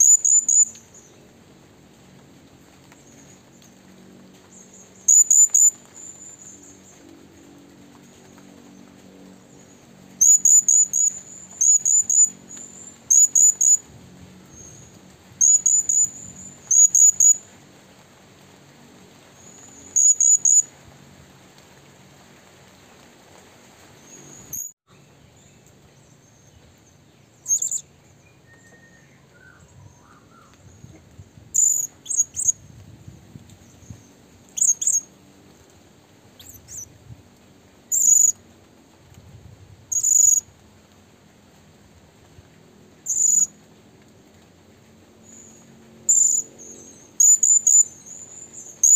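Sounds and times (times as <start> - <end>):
bird chirping high: 0.0 - 1.2, 4.8 - 6.8, 10.2 - 13.8, 14.5 - 17.4, 19.4 - 20.7, 27.4 - 27.8, 31.6 - 32.6, 34.6 - 35.1, 36.4 - 36.9, 37.9 - 38.4, 39.9 - 40.4, 43.1 - 43.5, 45.3 - 48.9.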